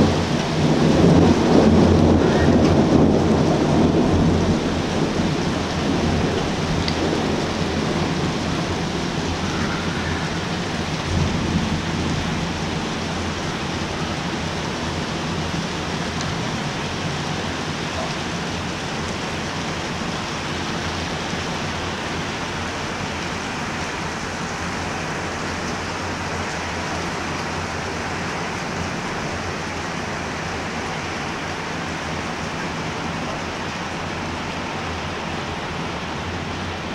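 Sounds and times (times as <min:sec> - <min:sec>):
low rumble of thunder: 0:00.0 - 0:26.4
steady rain: 0:00.0 - 0:36.9.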